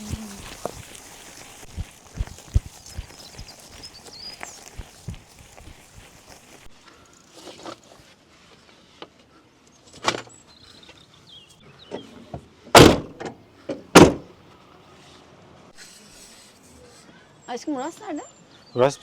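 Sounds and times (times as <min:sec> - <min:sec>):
heavy thumps: 0:12.8 - 0:13.2, 0:14.0 - 0:14.3.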